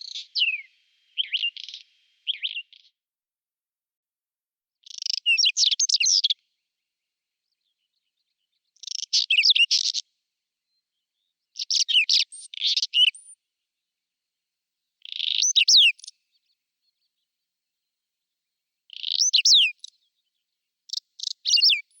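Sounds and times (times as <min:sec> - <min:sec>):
songbird singing: 0:00.0 - 0:03.0, 0:04.8 - 0:06.7, 0:07.4 - 0:10.0, 0:10.7 - 0:13.4, 0:15.0 - 0:17.4, 0:18.9 - 0:22.0.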